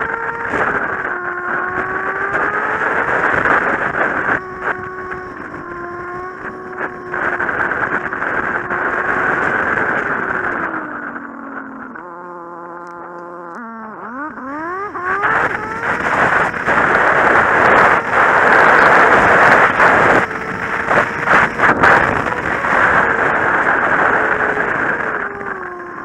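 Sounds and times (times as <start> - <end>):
wind buffeting the microphone: 0.0 - 12.1, 12.9 - 26.0
motorcycle engine accelerating: 0.0 - 26.0.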